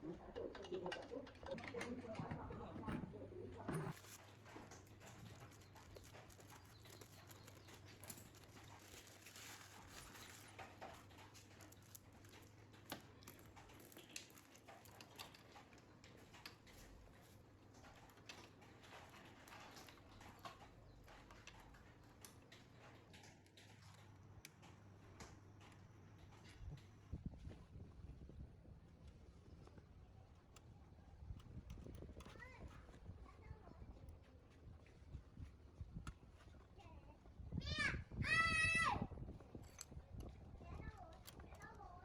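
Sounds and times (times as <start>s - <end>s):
small clicks and taps: 29.0s - 36.7s.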